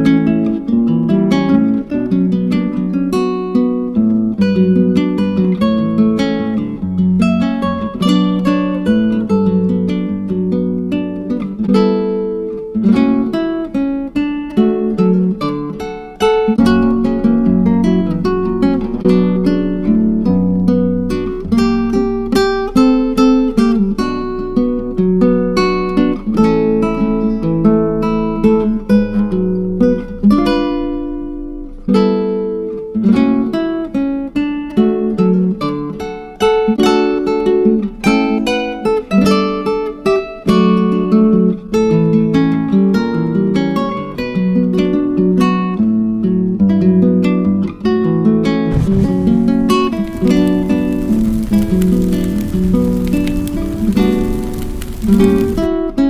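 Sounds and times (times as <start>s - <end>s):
acoustic guitar chords: 48.7s - 56.0s.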